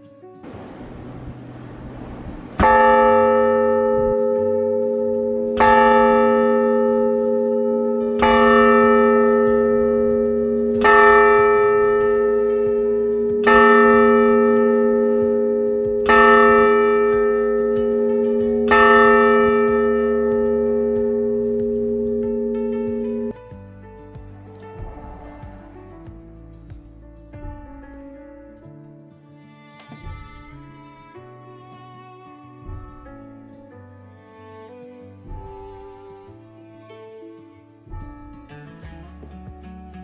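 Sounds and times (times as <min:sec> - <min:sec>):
faint rushing noise: 0:00.4 - 0:27.4
church bell ringing: 0:02.6 - 0:23.4.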